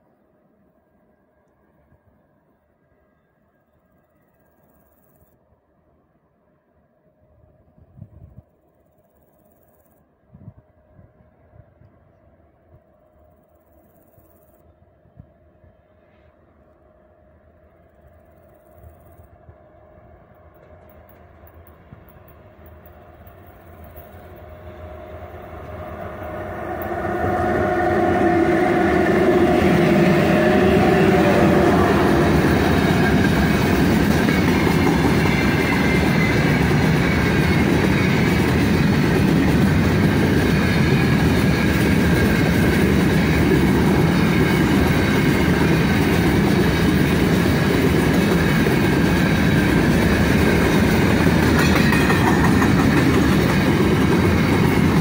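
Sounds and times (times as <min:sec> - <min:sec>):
electric locomotive humming: 0:10.2 - 0:55.0
freight wagons rumbling on rails: 0:18.2 - 0:55.0.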